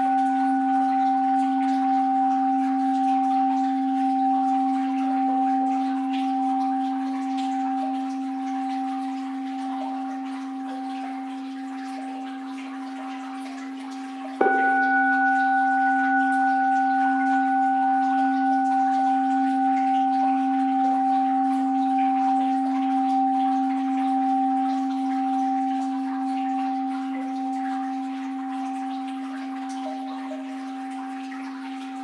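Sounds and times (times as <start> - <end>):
bowl bell ringing: 0.0 - 32.0
faint flowing water: 0.0 - 32.0.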